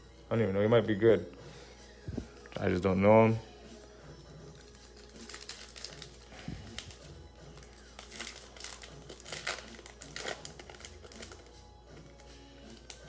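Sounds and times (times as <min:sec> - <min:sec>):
faint background music: 0:00.0 - 0:13.0
foil wrapper crinkling: 0:04.5 - 0:13.0.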